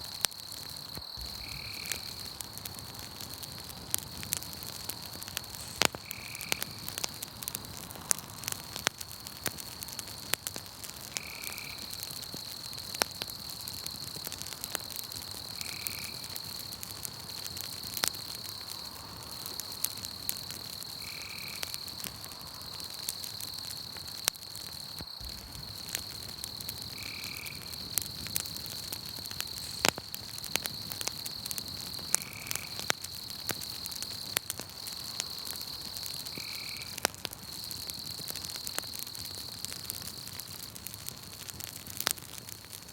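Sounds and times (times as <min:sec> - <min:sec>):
night insects droning: 0:00.0 - 0:42.5
campfire crackling and popping: 0:00.0 - 0:42.9.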